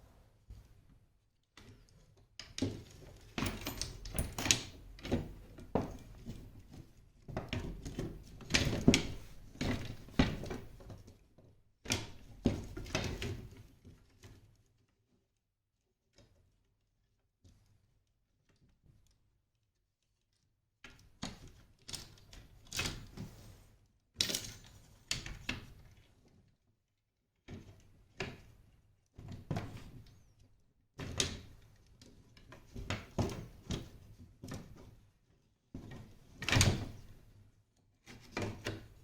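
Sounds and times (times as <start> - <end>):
parasol parts knocking and clattering: 2.6 - 6.2.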